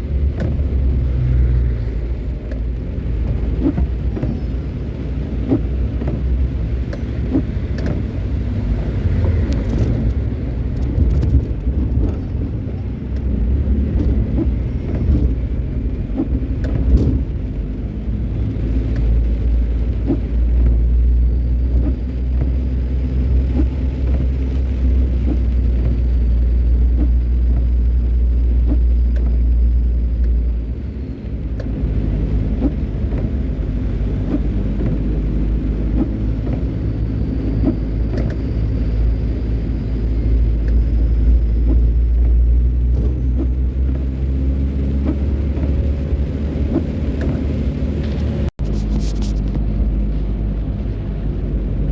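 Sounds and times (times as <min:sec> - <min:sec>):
car engine and road rumble: 0:00.0 - 0:51.9.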